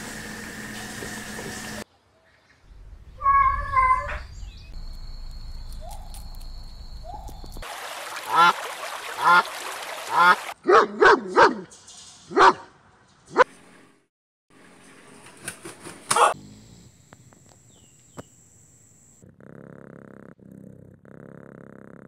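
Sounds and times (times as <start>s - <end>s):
dog barking: 10.1s - 11.7s, 12.3s - 12.7s, 16.1s - 16.4s.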